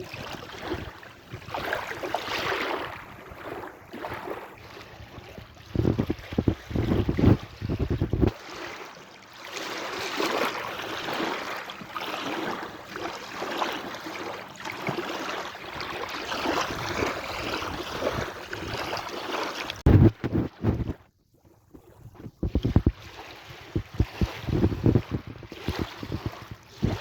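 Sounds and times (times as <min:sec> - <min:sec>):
sea waves washing: 0:00.0 - 0:20.8
wind buffeting microphone: 0:04.7 - 0:08.4, 0:16.3 - 0:19.0, 0:19.8 - 0:21.1, 0:21.8 - 0:27.0.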